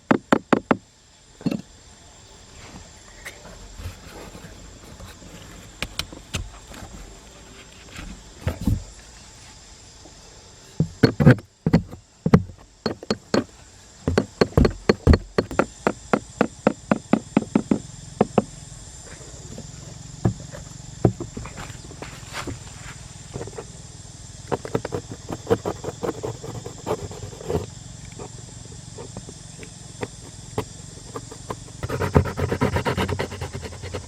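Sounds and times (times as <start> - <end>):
sharp knocks: 14.1 - 18.5.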